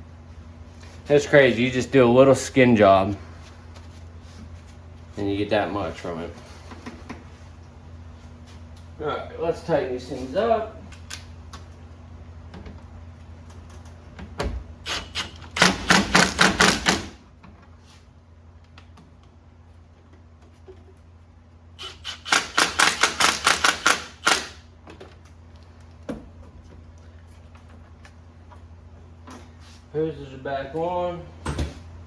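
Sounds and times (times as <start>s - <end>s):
ratchet clicking: 21.8s - 24.6s.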